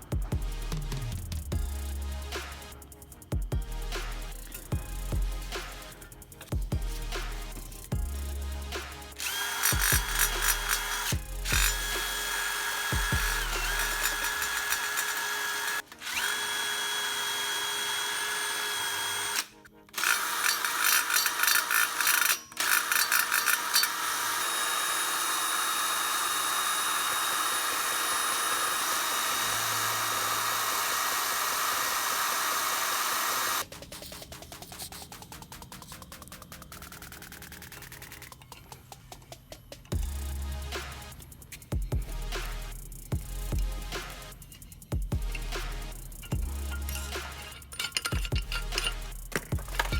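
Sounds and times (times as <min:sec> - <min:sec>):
electric power tool motor whining: 0:09.2 - 0:33.6.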